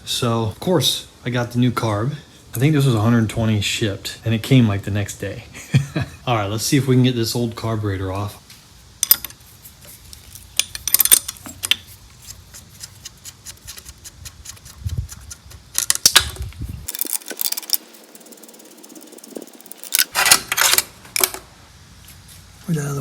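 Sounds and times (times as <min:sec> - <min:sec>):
hand tools clicking on metal: 0:09.0 - 0:09.4, 0:10.2 - 0:21.4.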